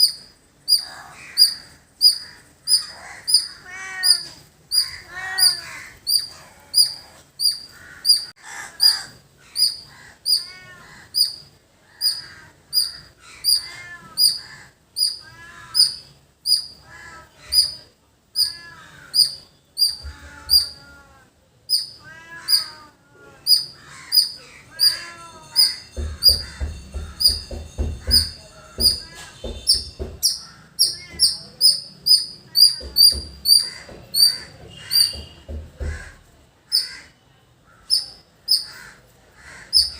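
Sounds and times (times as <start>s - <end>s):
squirrel chirping: 0.0s - 20.9s, 21.7s - 22.8s, 23.4s - 35.5s, 37.8s - 38.8s, 39.6s - 39.9s
bird calls: 0.0s - 21.1s, 21.7s - 39.9s
low rumbling thumps: 25.8s - 36.3s.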